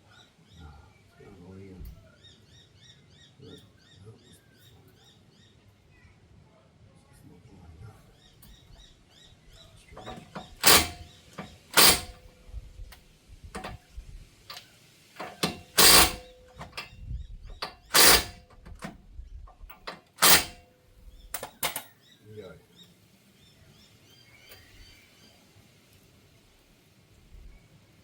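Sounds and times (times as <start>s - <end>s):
loud sharp bangs: 10.0s - 12.3s, 15.2s - 16.9s, 17.6s - 18.9s
faint bird chirps: 21.0s - 25.6s.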